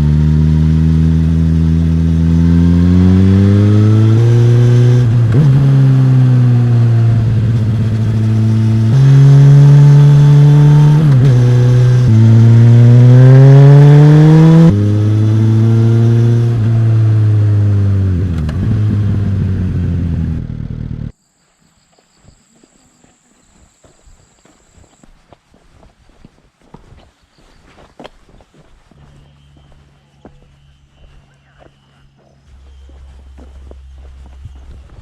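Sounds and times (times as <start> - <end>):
motorcycle engine and exhaust: 0.0 - 21.2, 28.9 - 35.0.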